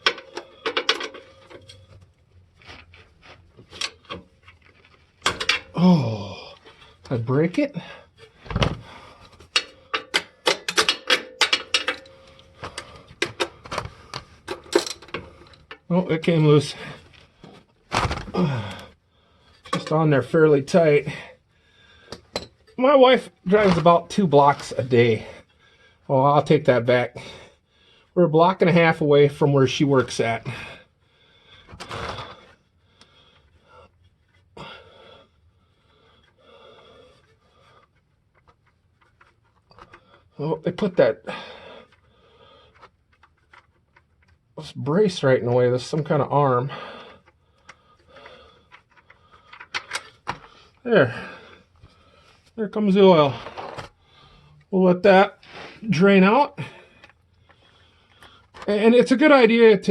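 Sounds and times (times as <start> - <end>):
man breathing out heavily: 41.2 - 42.9.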